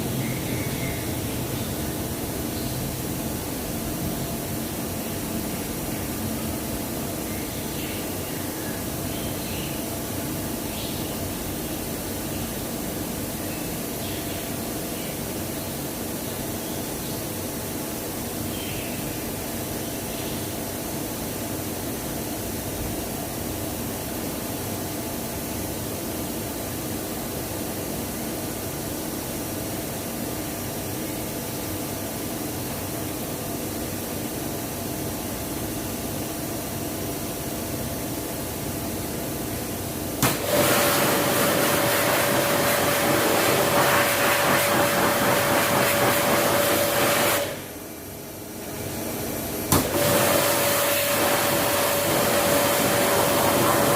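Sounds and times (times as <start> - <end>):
steady mechanical hum: 0.0 - 53.9
hissing sprayer with whine: 31.6 - 53.9.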